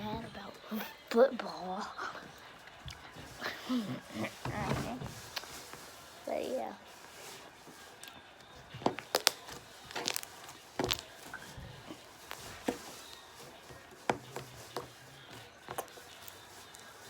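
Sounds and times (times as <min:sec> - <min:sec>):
sticky clicks and pops: 0:08.9 - 0:11.0
slime squeezed by hand: 0:08.9 - 0:13.2.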